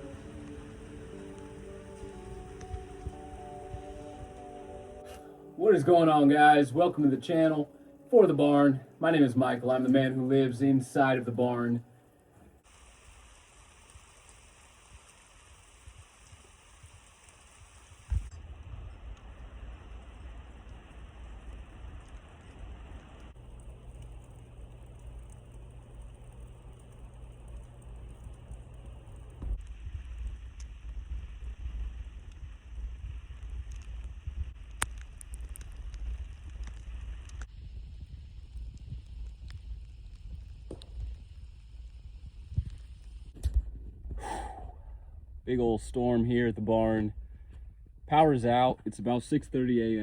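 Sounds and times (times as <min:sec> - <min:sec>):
rain patter on surfaces: 0:00.0 - 0:10.6, 0:11.2 - 0:43.3
low rumble: 0:00.0 - 0:12.6, 0:18.0 - 0:48.9
small scattered ticks: 0:12.0 - 0:18.4, 0:20.1 - 0:43.6.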